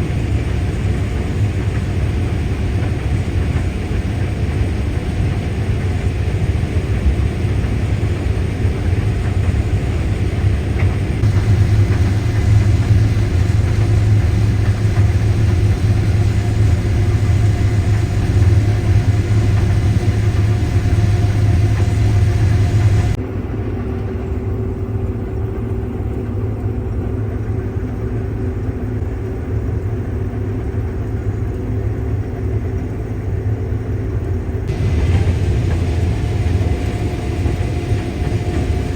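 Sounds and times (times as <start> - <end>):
combine harvester engine drone: 0.0 - 25.9, 34.6 - 38.9.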